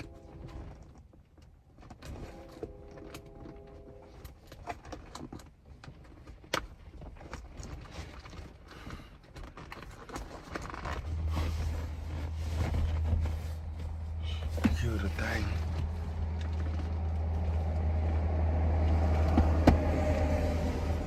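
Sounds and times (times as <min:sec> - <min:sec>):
fabric rustling: 0:09.6 - 0:17.7.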